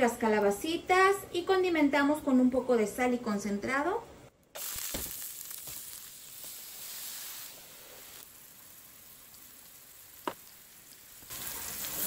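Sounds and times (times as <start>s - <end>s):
meat frying in hot oil: 4.6s - 12.0s.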